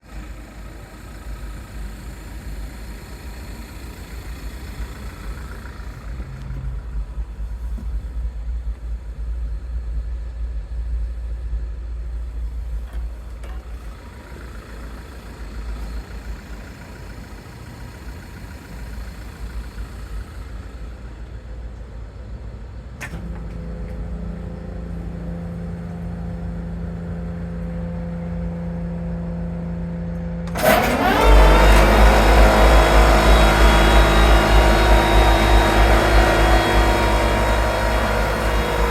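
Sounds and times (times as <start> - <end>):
machinery rumbling: 0.0 - 21.2, 23.0 - 38.9.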